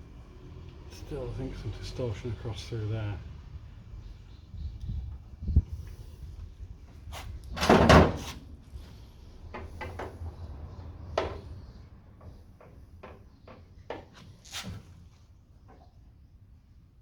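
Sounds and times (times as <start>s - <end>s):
taps and knocks on metal panel: 12.2s - 14.2s.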